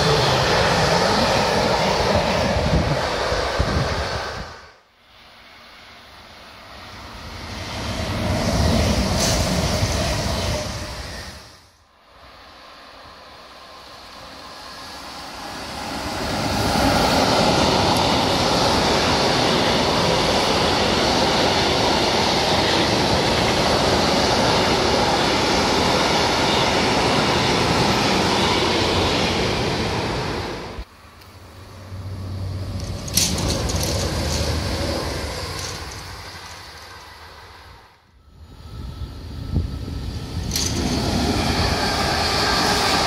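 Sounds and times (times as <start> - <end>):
another train approaching: 0.0 - 43.0
freight train rolling past: 0.0 - 43.0
sharp click near railway: 8.9 - 9.9, 17.6 - 18.6, 22.5 - 23.8, 31.1 - 31.4, 32.6 - 37.5, 40.4 - 43.0.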